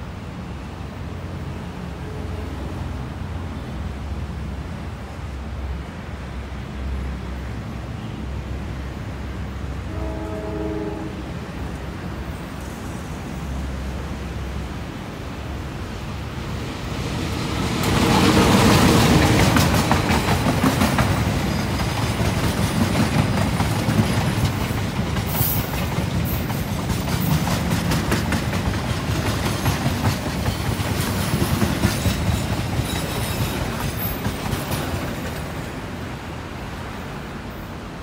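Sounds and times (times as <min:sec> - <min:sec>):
diesel locomotive engine passing: 0:00.0 - 0:38.0
wheels clattering over rail joints: 0:17.7 - 0:35.7.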